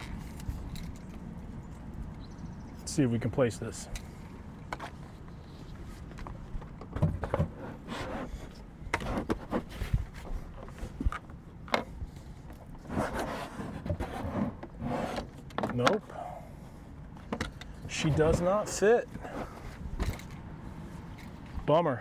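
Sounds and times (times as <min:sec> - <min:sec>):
plastic knocking and scraping: 0:04.7 - 0:16.1, 0:17.2 - 0:20.4.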